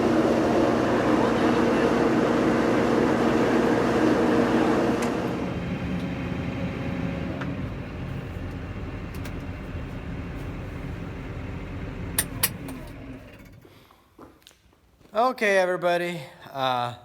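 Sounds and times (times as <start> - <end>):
diesel engine running: 0.0 - 13.8
low engine rumble: 0.0 - 13.8
engine switch click: 12.1 - 13.6.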